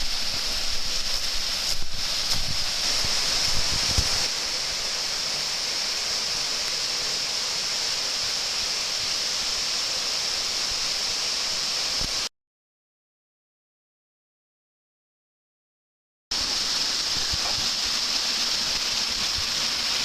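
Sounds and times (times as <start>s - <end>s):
waterfall rushing: 0.0s - 12.3s, 16.3s - 20.0s.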